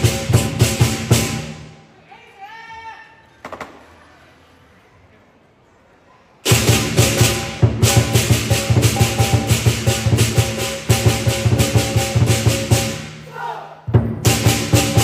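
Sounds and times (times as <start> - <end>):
big drum beating fast: 0.0 - 1.6, 6.5 - 13.1, 13.9 - 15.0
cymbals crashing: 0.0 - 1.8, 6.4 - 13.3, 13.9 - 15.0
gong: 6.6 - 13.0.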